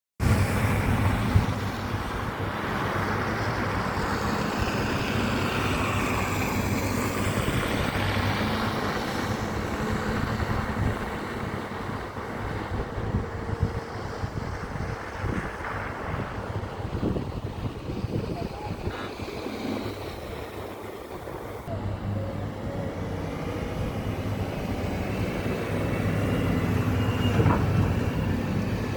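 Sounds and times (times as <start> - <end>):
road noise: 0.2 - 28.9
truck engine humming: 18.0 - 28.9.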